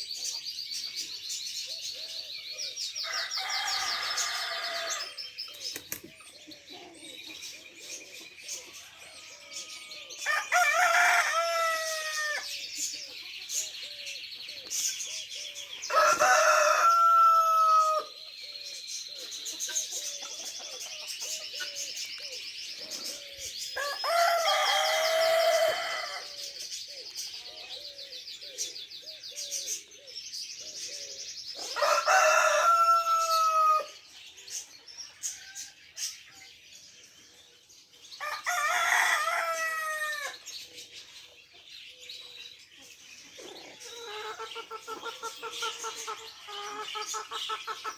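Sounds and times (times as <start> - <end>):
small birds chirping: 0.0 - 47.9
rooster crowing: 3.0 - 5.2, 9.1 - 12.5, 15.9 - 18.1, 23.8 - 26.4, 31.7 - 34.0, 38.2 - 40.4
chicken clucking: 42.8 - 47.9.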